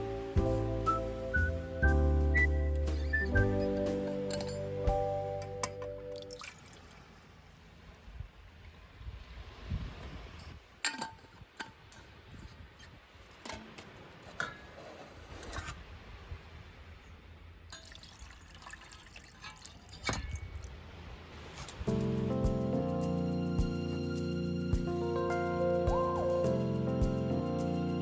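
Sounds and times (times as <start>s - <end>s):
water pouring and dripping: 2.8s - 7.4s, 17.7s - 22.2s
cookware clinking: 3.7s - 4.8s.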